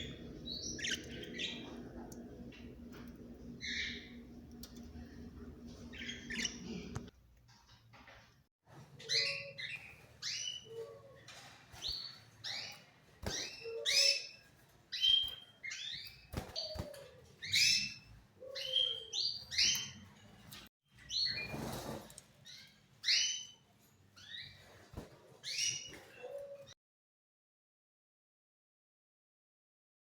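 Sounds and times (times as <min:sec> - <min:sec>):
birds chirping: 0:00.0 - 0:07.1.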